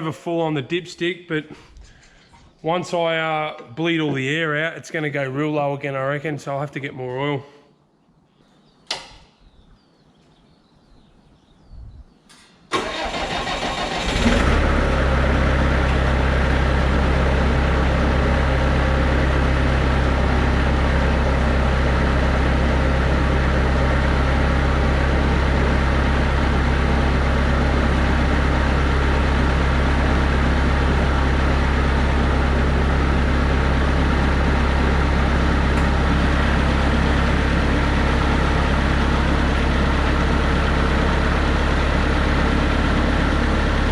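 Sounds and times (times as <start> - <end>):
diesel engine idling: 12.7 - 43.9
starter cranking diesel engine: 12.7 - 43.9.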